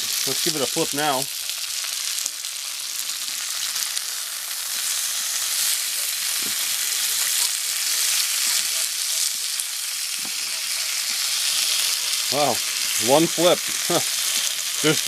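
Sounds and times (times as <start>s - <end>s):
bacon sizzling in a frying pan: 0.0s - 15.0s.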